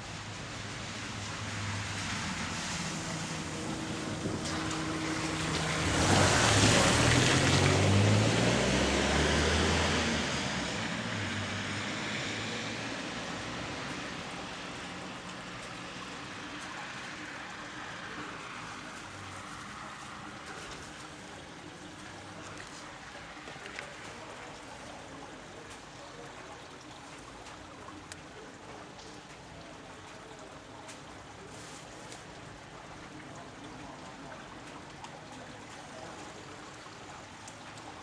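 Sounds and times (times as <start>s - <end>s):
motor vehicle passing by: 0.2s - 25.3s.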